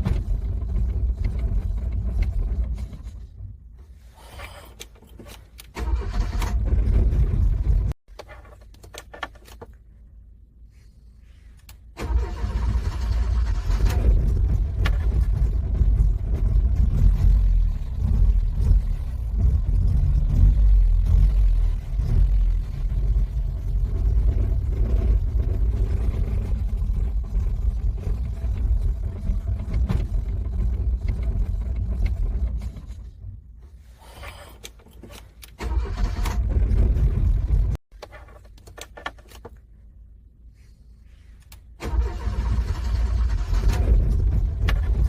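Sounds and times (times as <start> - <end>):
car starter cranking engine: 4.2 - 7.8, 11.9 - 23.0, 34.2 - 37.8, 41.8 - 45.0.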